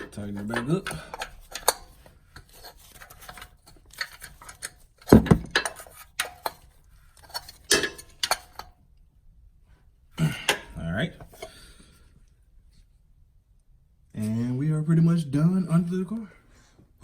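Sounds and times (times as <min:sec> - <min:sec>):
heavy knocks: 0:05.2 - 0:05.6.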